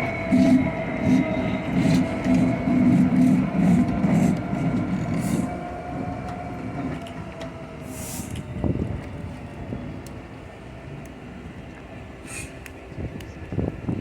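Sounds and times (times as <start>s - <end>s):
diesel locomotive engine rumble: 0.0s - 14.0s
brief hiss: 12.2s - 12.6s.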